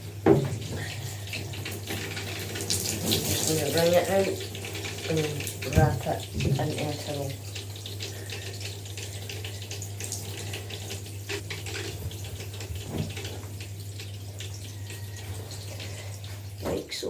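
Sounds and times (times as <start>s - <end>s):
tap water running into sink: 0.0s - 17.0s.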